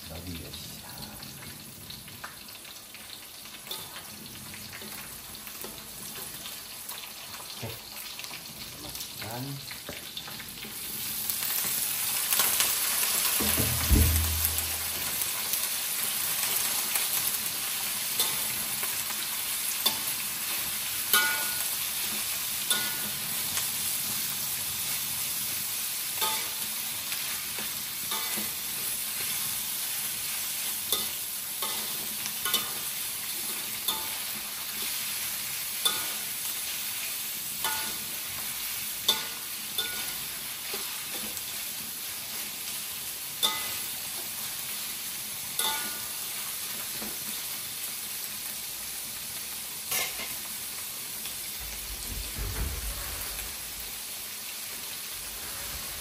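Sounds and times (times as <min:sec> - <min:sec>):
meat sizzling in hot oil: 0:00.0 - 0:56.0
low thump: 0:13.4 - 0:15.0, 0:51.7 - 0:53.5
metal spatula clinking on wok: 0:21.1 - 0:21.7, 0:22.7 - 0:23.1, 0:26.2 - 0:26.6, 0:30.9 - 0:32.8, 0:33.9 - 0:34.2, 0:35.8 - 0:36.2, 0:37.6 - 0:38.0, 0:39.1 - 0:40.2, 0:43.4 - 0:43.8, 0:45.6 - 0:46.0.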